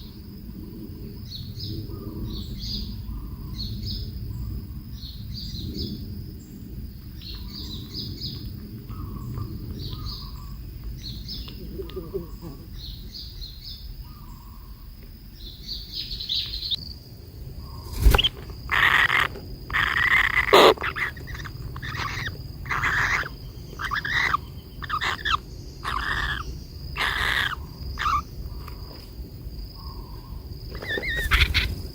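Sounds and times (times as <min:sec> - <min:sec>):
bird chirping harshly: 0:17.8 - 0:28.2, 0:30.7 - 0:31.9.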